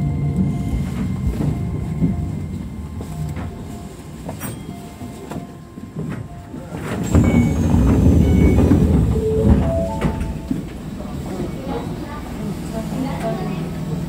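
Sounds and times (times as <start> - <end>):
electric train rumbling: 0.0 - 14.0
wheel squeals: 6.9 - 10.4.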